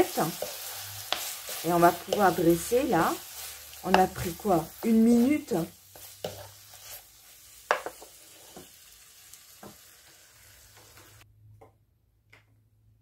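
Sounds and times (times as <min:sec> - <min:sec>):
beef sizzling in a wok: 0:00.0 - 0:11.2
spatula scraping a pan: 0:00.1 - 0:08.8.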